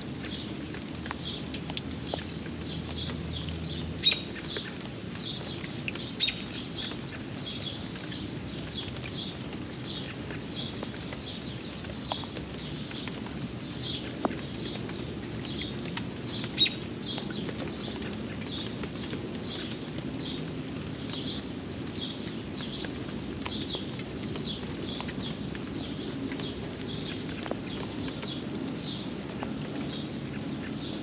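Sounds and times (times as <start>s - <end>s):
steady rain: 0.0s - 31.0s
bird chirping: 4.0s - 4.7s, 6.0s - 7.0s, 16.4s - 16.8s.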